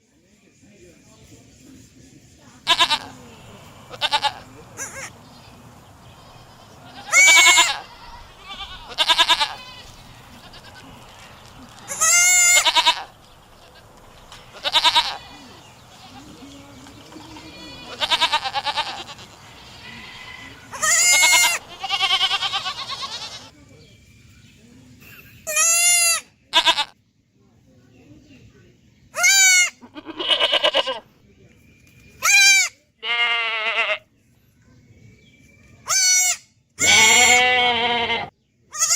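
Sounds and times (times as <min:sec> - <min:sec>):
goat bleating: 0:02.7 - 0:03.2, 0:03.8 - 0:23.5, 0:25.4 - 0:27.0, 0:29.2 - 0:31.0, 0:32.2 - 0:34.0, 0:35.9 - 0:38.9.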